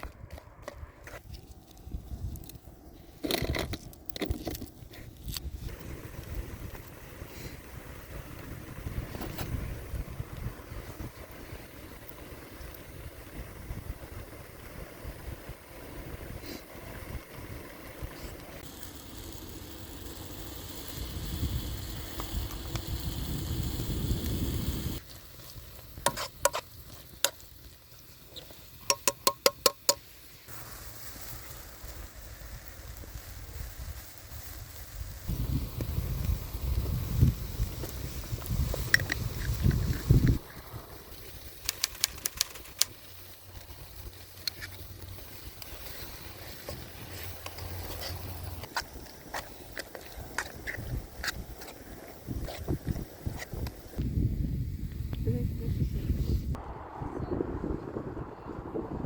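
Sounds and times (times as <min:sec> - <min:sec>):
campfire crackling: 0:00.0 - 0:55.2
low rumbling hiss: 0:30.1 - 0:41.7
low rumble: 0:54.0 - 0:59.0.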